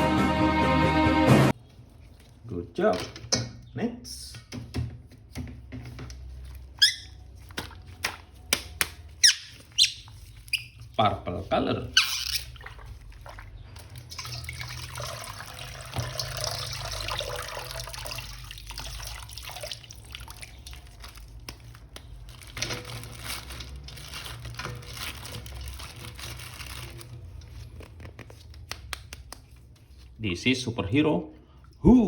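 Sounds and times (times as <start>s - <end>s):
tap water running and splashing: 12.4s - 21.2s.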